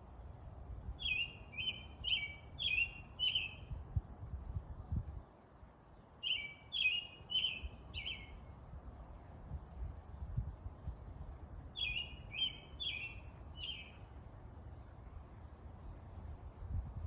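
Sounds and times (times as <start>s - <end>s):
bird chirping: 0.6s - 3.7s, 6.2s - 8.7s, 11.8s - 14.4s
low steady background rumble: 7.7s - 17.0s.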